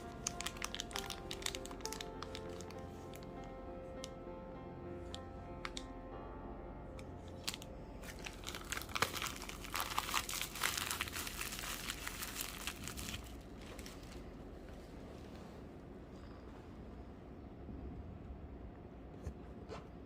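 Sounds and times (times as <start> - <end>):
packaging crinkling: 0.0 - 4.1, 7.0 - 14.4.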